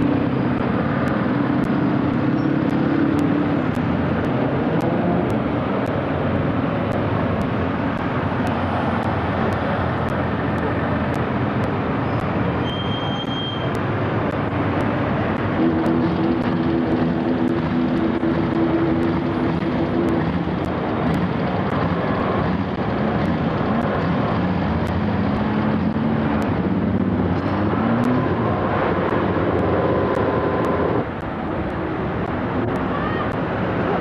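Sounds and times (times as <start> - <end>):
vehicle engine running: 13.7 - 34.0.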